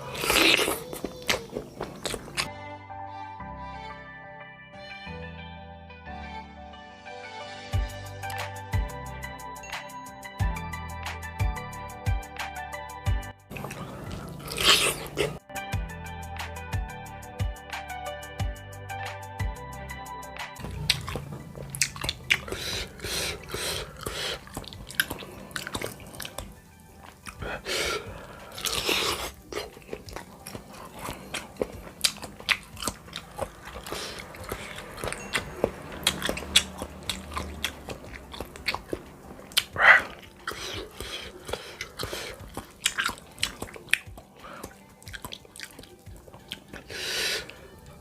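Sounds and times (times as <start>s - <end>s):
wet chewing and biting: 0.0s - 2.5s, 13.5s - 15.4s, 20.6s - 47.9s.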